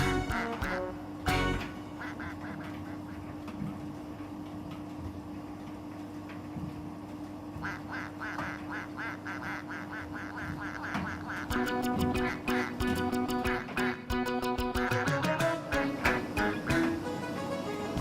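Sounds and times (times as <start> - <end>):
rhythmic quack-like squeak: 0.0 - 3.4, 7.6 - 16.9
tumble dryer humming: 0.0 - 5.4, 7.5 - 18.0.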